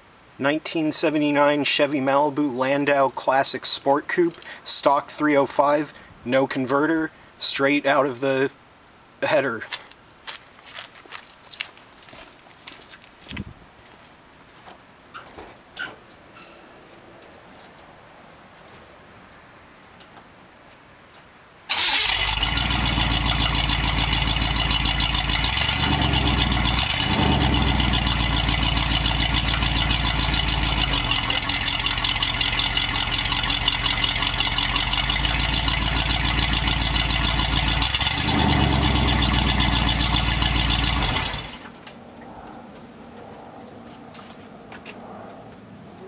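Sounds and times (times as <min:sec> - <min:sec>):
loud unmuffled car engine idling: 0:22.1 - 0:41.7.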